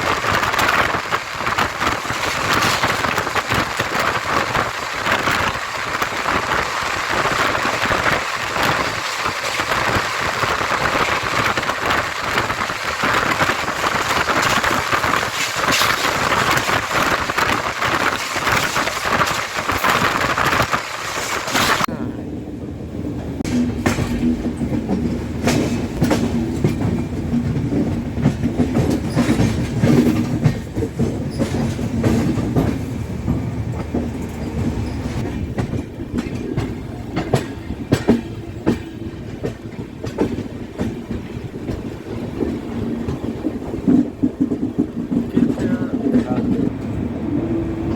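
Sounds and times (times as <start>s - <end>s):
wheels clattering over rail joints: 0.0s - 21.9s, 23.4s - 47.0s
train rushing at speed: 0.0s - 47.9s.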